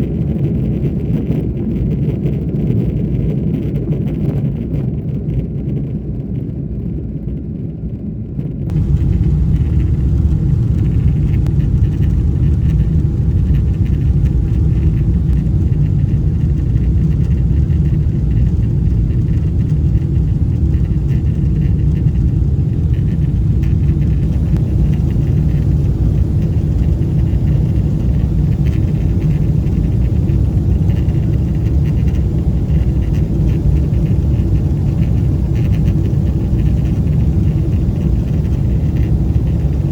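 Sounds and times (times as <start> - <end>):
jet engines rumbling: 8.6 - 39.9
airflow past fuselage: 8.7 - 39.9.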